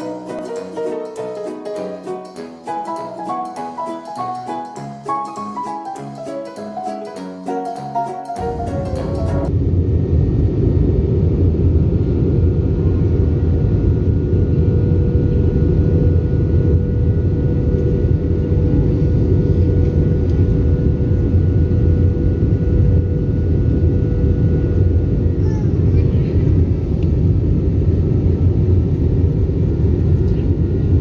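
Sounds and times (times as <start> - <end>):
airliner cabin engine rumble: 8.4 - 31.0.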